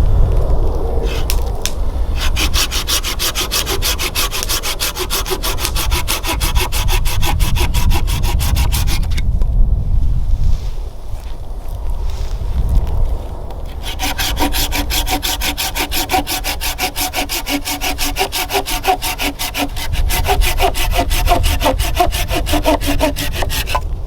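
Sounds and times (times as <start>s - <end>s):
hand saw cutting wood: 1.0s - 1.5s, 2.2s - 9.2s, 13.7s - 23.9s.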